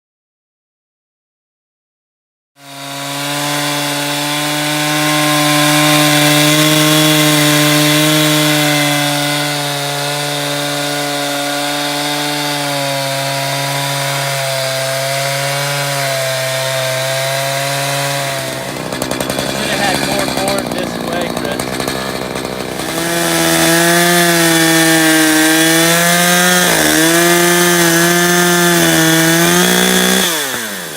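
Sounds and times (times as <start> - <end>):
chainsaw cutting wood: 2.6 - 30.9.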